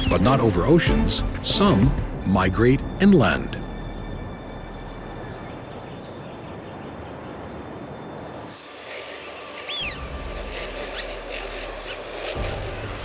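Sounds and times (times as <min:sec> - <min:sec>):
small birds chirping: 0:03.9 - 0:13.0.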